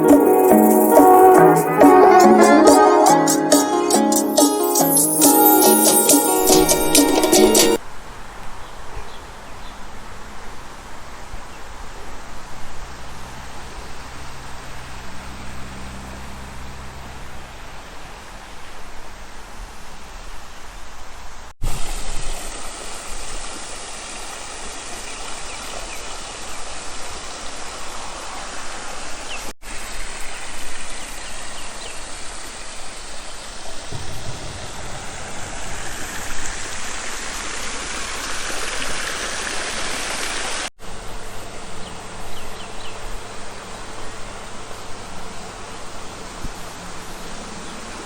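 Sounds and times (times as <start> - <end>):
rushing outdoor noise: 5.3 - 48.0.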